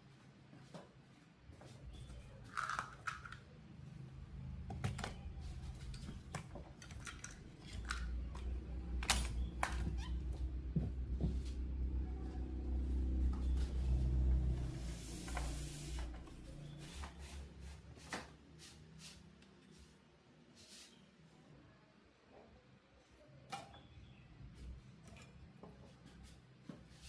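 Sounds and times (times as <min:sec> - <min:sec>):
objects handled on a workbench: 0:04.6 - 0:11.6.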